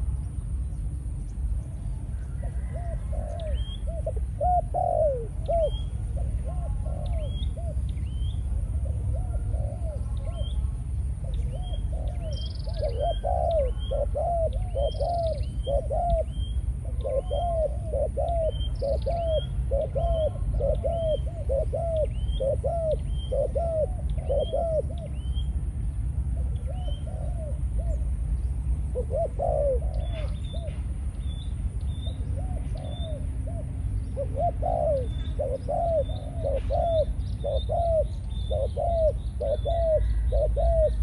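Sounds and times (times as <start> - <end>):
bird chirping: 0.2 - 25.6, 26.3 - 41.0
dove cooing: 1.9 - 25.5, 26.3 - 31.1, 31.8 - 41.0.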